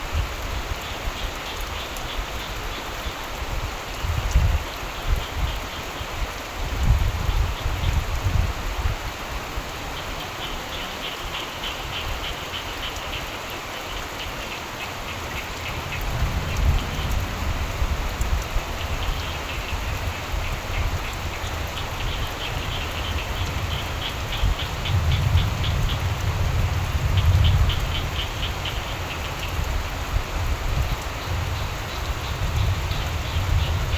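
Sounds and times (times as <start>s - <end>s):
steady rain falling: 0.0s - 33.9s
low rumble: 15.4s - 20.2s
frogs trilling in chorus: 18.6s - 26.3s.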